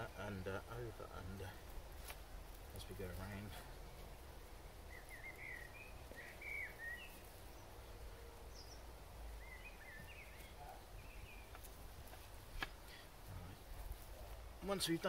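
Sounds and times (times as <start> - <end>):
bird chirping: 2.6 - 14.0.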